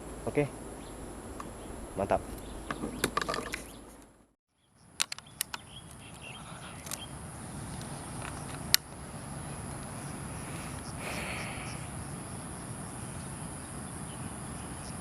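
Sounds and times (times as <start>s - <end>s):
high-pitched insect drone: 6.5s - 15.0s.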